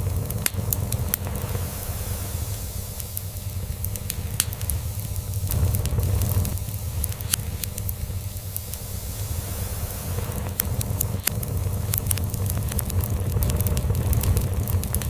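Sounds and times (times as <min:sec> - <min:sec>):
log fire crackling: 0:00.0 - 0:15.0.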